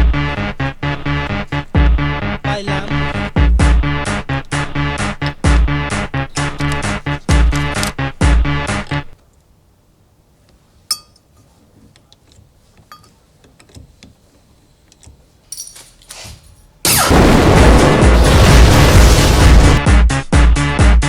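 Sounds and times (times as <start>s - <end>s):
loud electronic music: 0.0s - 4.2s
sharp metallic clink: 10.9s - 11.3s.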